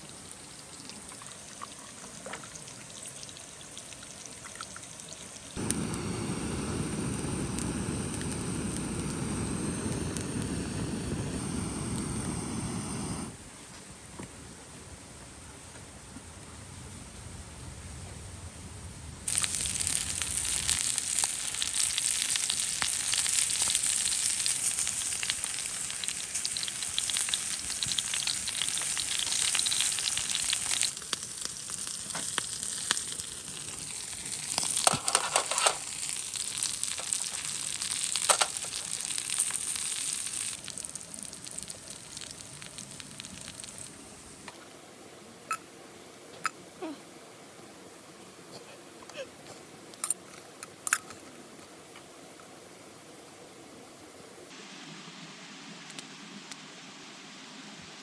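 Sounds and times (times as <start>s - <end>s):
food sizzling in a hot pan: 5.6s - 13.3s, 19.3s - 43.9s.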